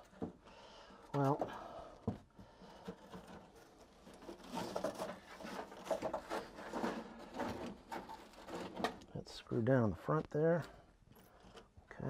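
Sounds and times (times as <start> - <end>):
loose parts clattering: 2.8 - 9.1.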